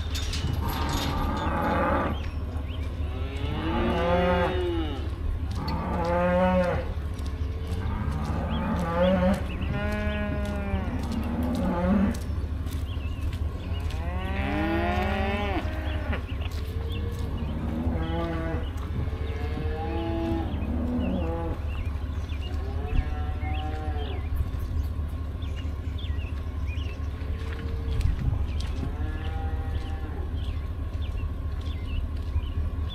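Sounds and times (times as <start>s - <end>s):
cattle mooing: 0.1s - 12.2s, 13.8s - 21.8s, 22.4s - 24.3s, 28.7s - 30.5s.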